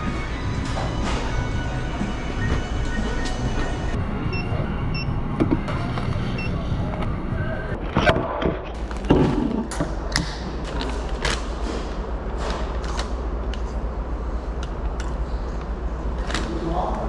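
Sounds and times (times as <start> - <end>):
heavy thumps: 8.8 - 12.8.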